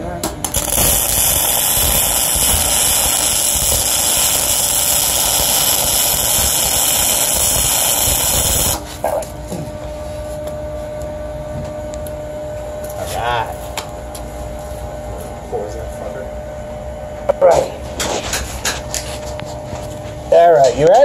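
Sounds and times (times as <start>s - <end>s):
steady hum: 0.0s - 21.0s
welding arc hissing: 0.4s - 9.1s.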